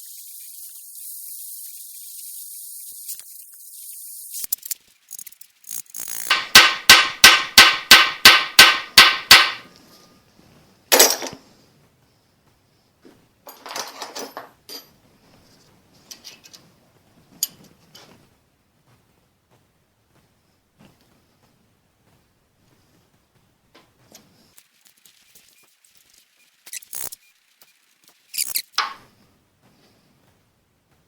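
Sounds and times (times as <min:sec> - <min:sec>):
hammer striking metal: 0:06.3 - 0:09.7.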